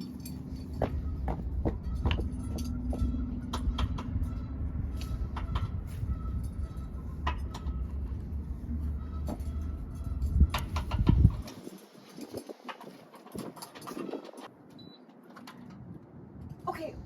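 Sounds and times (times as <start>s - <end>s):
metal keys jangling: 0.0s - 4.4s
low outdoor rumble: 0.0s - 12.5s.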